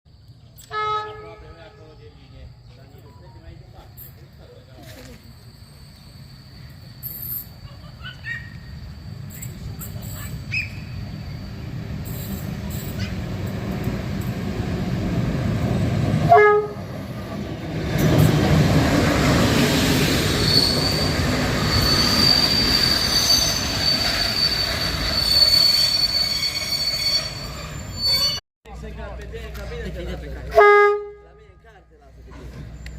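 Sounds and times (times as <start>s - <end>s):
train rumbling: 0.4s - 30.7s, 32.0s - 32.9s
train horn: 0.6s - 2.0s, 16.2s - 16.9s, 30.5s - 31.4s
high-pitched wheel squeal: 20.1s - 28.4s.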